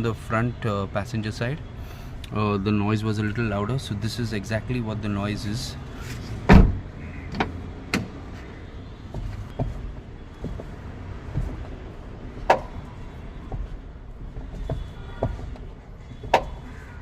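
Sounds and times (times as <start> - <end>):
car door thud: 6.4 - 8.2, 12.4 - 12.9.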